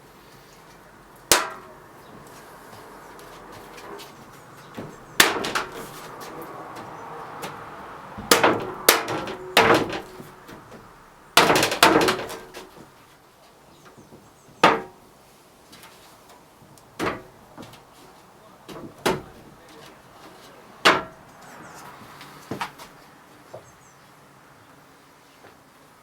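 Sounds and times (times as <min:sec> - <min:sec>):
hammer striking steel: 0:01.3 - 0:01.8, 0:04.8 - 0:06.1, 0:08.2 - 0:10.7.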